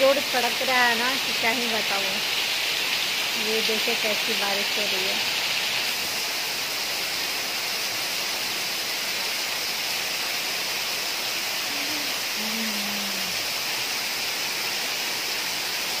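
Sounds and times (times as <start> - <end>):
heavy rain on flooded street: 0.0 - 16.0.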